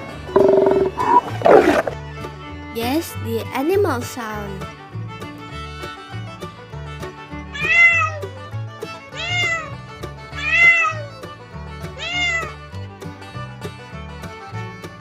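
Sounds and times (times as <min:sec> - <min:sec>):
background music: 0:00.0 - 0:15.0
cat meowing: 0:07.6 - 0:08.2, 0:09.2 - 0:09.7, 0:10.4 - 0:11.1, 0:12.0 - 0:12.6.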